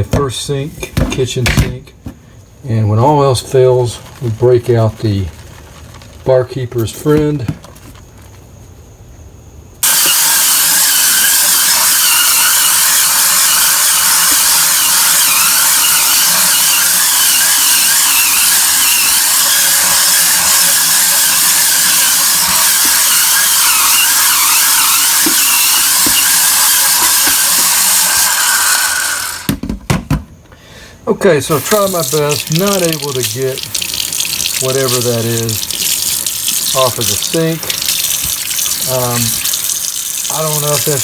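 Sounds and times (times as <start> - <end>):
spin scrubber motor whirring: 9.8 - 29.5.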